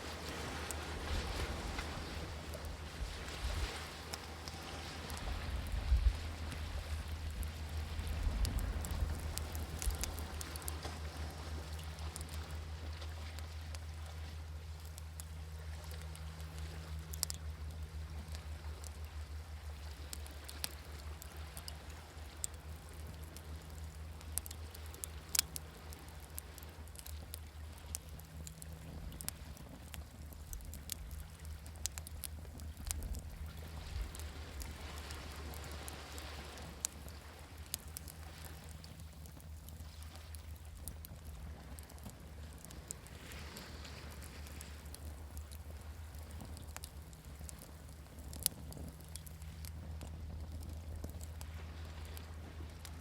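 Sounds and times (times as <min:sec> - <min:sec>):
sea waves: 0:00.0 - 0:14.4, 0:30.6 - 0:48.0
campfire crackling and popping: 0:00.0 - 0:53.0.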